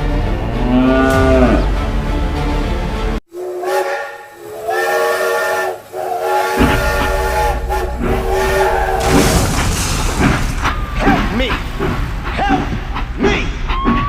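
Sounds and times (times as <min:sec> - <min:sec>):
multi-tone train horn blasts: 0:03.3 - 0:09.0
low rumble: 0:06.6 - 0:13.7.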